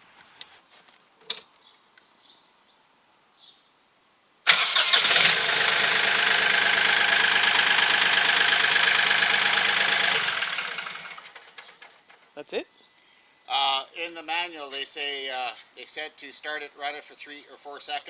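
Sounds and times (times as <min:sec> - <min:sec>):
tractor diesel engine idling: 0:04.5 - 0:11.6
engine cranking: 0:04.5 - 0:12.1.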